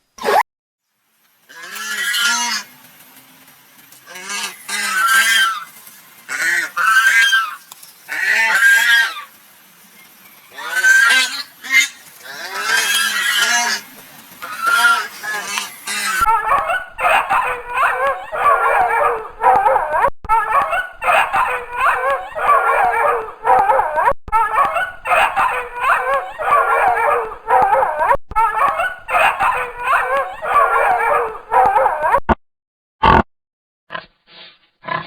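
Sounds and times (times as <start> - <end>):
puppies whimpering and yipping: 4.2 - 9.4, 10.6 - 32.1.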